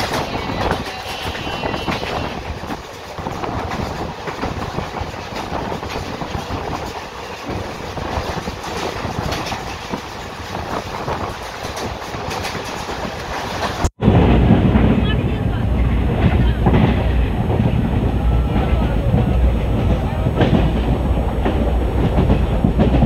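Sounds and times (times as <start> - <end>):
track clicks and clatter: 0.0 - 14.0, 14.6 - 23.0
train wheels rumbling on rail: 0.0 - 23.0.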